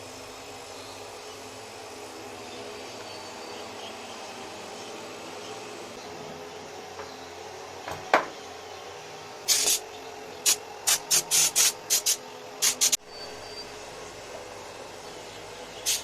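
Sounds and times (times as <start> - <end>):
air compressor humming: 0.0 - 16.0
compressed air hissing: 9.5 - 16.0.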